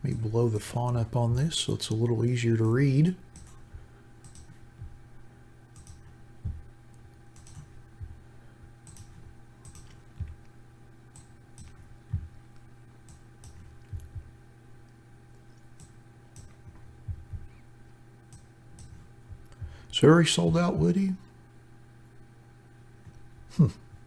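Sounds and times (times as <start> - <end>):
low electrical hum: 0.0 - 24.0
computer mouse clicks: 2.6 - 5.0, 5.8 - 6.6, 7.3 - 8.2, 8.8 - 10.5, 11.1 - 12.3, 13.1 - 14.3, 15.8 - 17.6, 18.3 - 19.8.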